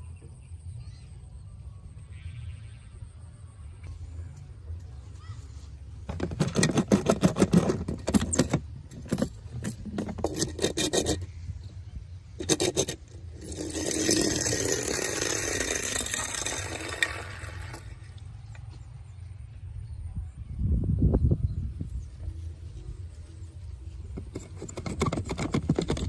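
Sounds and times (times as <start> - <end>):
plastic toys rattling and clicking: 6.0 - 11.8, 12.4 - 18.2, 24.1 - 26.0
steady rushing scrape: 6.1 - 18.2.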